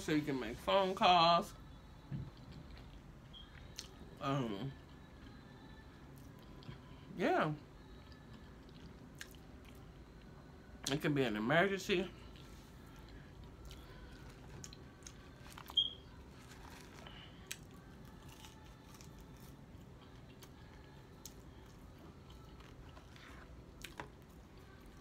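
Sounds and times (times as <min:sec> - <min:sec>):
person chewing food: 0:02.2 - 0:04.0, 0:07.9 - 0:10.3, 0:12.2 - 0:25.0.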